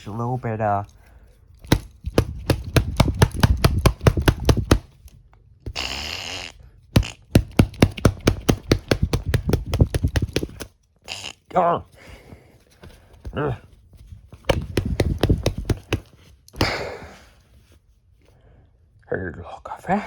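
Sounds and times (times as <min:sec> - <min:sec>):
rapid sharp tapping: 0:01.6 - 0:05.1, 0:05.7 - 0:10.7, 0:14.5 - 0:16.8.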